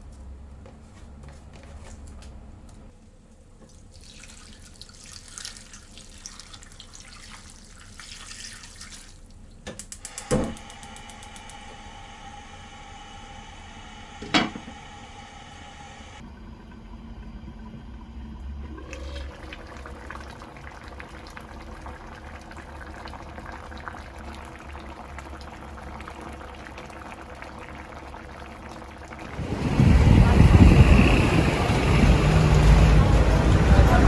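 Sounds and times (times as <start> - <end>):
liquid bubbling and popping: 16.2 - 31.8.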